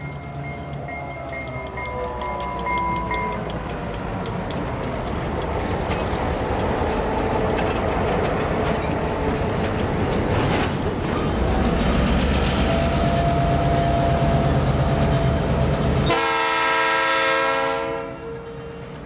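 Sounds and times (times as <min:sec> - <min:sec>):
locomotive bell ringing: 0:00.0 - 0:03.8, 0:12.6 - 0:16.5, 0:18.1 - 0:19.0
train wheels clacking: 0:00.0 - 0:16.4
locomotive rumbling: 0:00.0 - 0:19.0.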